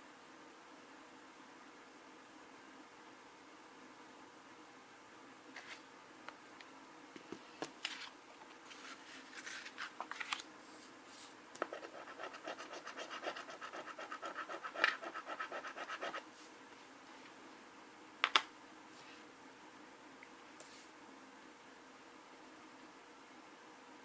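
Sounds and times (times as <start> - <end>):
coin scratching lottery ticket: 11.8 - 16.2.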